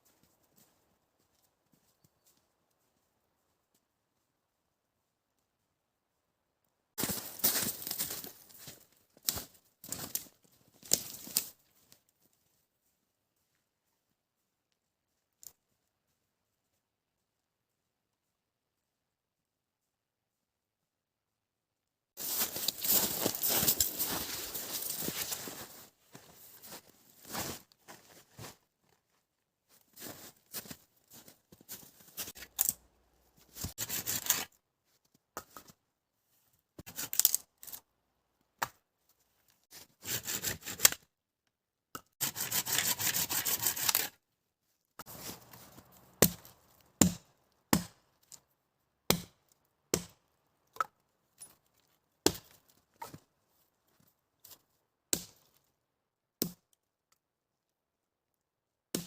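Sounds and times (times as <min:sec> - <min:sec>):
wood chopping strikes: 0:46.2 - 0:48.0, 0:49.1 - 0:50.2, 0:52.3 - 0:52.6.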